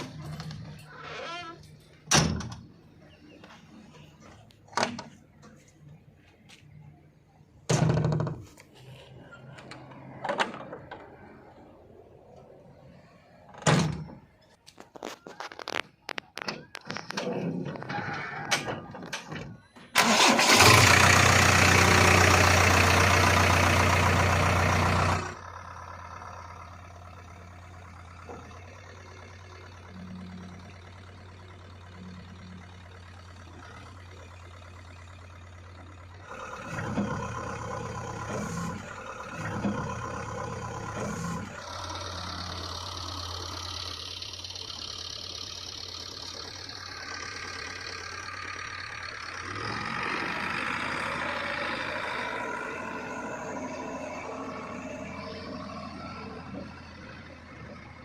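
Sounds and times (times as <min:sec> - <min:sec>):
knocks and clunks: 0:00.0 - 0:06.5, 0:07.5 - 0:08.8, 0:13.5 - 0:20.2
diesel machinery engine running: 0:00.0 - 0:58.0.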